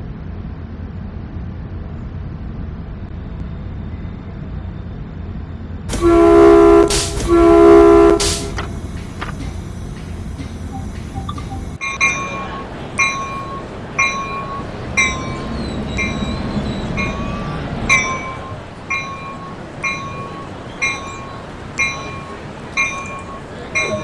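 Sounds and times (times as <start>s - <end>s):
low train rumble: 0.0s - 24.0s
locomotive bell ringing: 5.9s - 24.0s.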